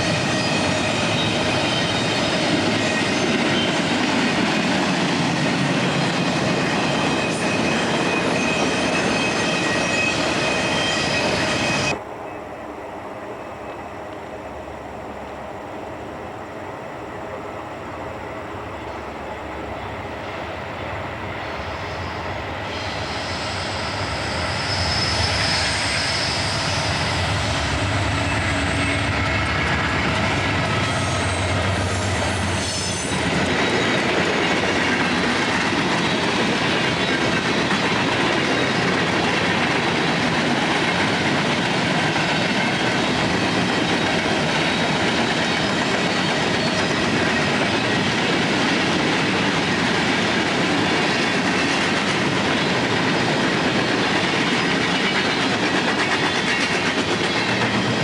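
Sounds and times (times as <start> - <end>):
high wheel squeal: 0.0 - 4.2, 5.2 - 12.0, 21.4 - 40.0
train passing: 0.0 - 58.0.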